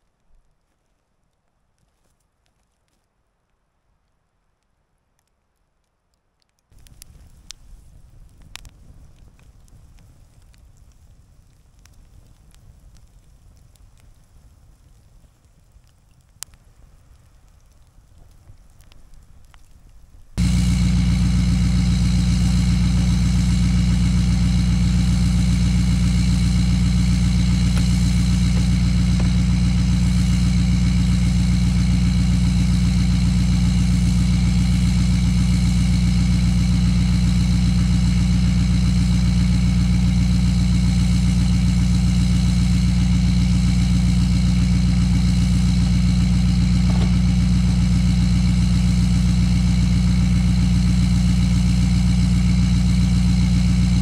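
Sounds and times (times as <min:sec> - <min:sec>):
engine idling: 0:20.4 - 0:54.0.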